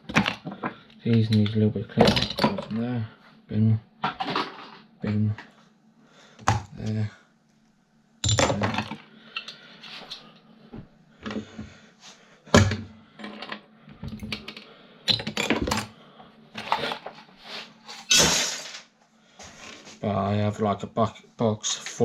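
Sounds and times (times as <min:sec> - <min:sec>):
small parts clattering: 0:04.0 - 0:04.9, 0:08.2 - 0:10.2, 0:18.0 - 0:18.9
parts rattling: 0:08.2 - 0:10.3, 0:18.0 - 0:18.9.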